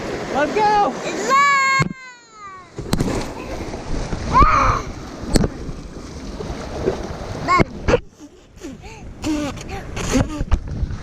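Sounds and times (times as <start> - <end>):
whitewater rushing: 0.0 - 8.0
water splashing: 0.0 - 11.0.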